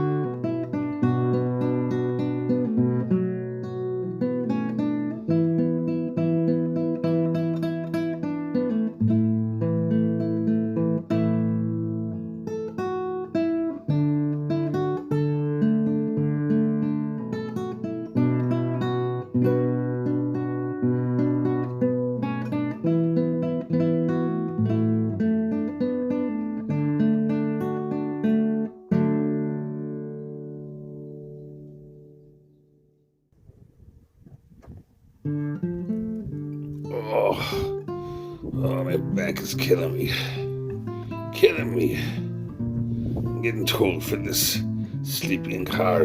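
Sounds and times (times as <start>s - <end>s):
acoustic guitar strumming: 0.0s - 33.0s, 35.2s - 46.0s.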